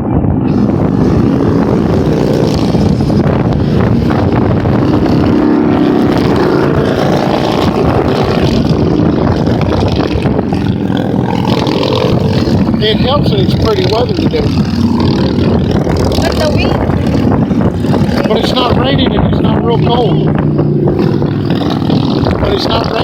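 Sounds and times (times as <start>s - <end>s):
motorcycles passing: 0.0s - 23.0s.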